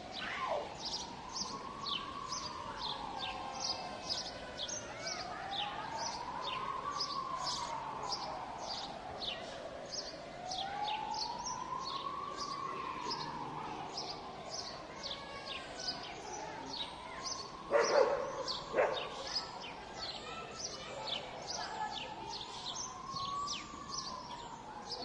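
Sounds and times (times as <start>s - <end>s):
siren wailing: 0.2s - 4.7s, 5.5s - 9.4s, 10.4s - 14.3s
birds chirping: 0.2s - 25.0s.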